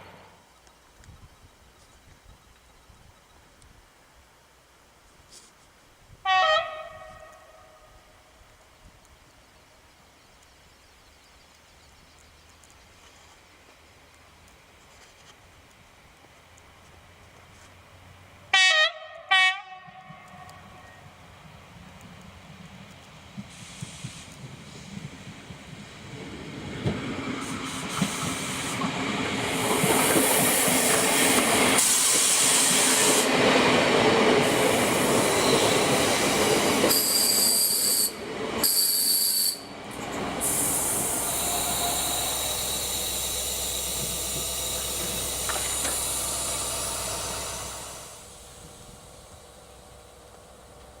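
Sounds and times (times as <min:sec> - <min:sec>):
train rumble passing: 0:19.7 - 0:39.0, 0:39.6 - 0:51.0
high wheel squeal: 0:36.9 - 0:39.7, 0:40.4 - 0:47.5.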